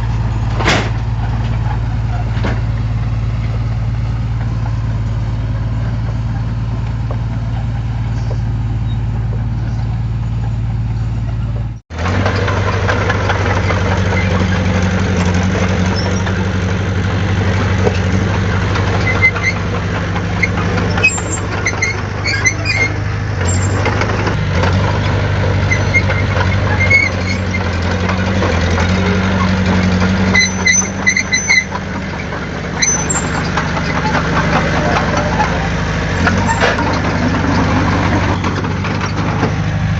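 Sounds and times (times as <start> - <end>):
heavy diesel engine running: 0.0 - 39.9
short high squeaks: 13.6 - 16.4, 20.3 - 24.1, 25.6 - 27.8, 28.9 - 39.2.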